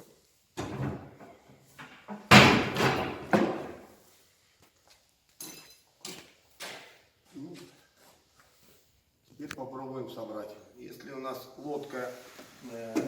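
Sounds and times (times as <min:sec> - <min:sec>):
folding ladder clattering: 0:00.6 - 0:03.8.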